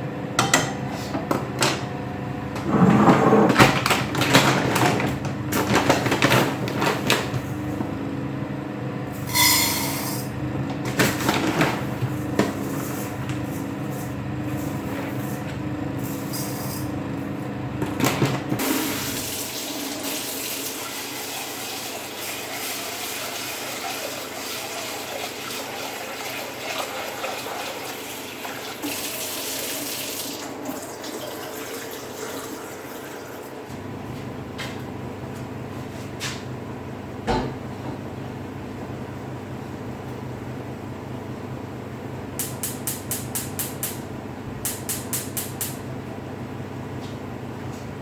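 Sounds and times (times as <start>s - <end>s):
tap water running into sink: 18.6s - 33.4s.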